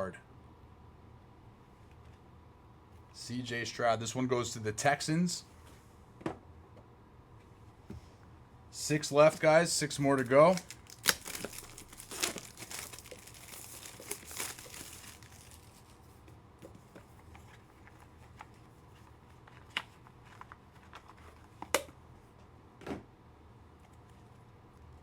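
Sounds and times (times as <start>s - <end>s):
cards and plastic cases clicking: 9.2s - 15.7s
plastic wrapping crinkling and tearing: 9.2s - 16.1s.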